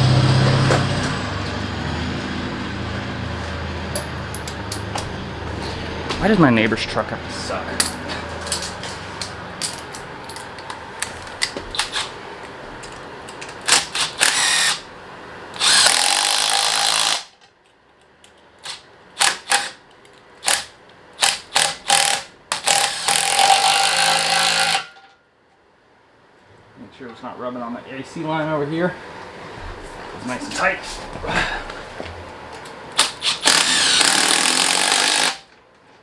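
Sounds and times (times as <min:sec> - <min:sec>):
tool handling clicks and knocks: 0:03.9 - 0:05.2, 0:07.8 - 0:13.8
electric ratchet spinning: 0:13.6 - 0:14.9, 0:15.5 - 0:17.4, 0:20.4 - 0:24.9, 0:33.0 - 0:35.5.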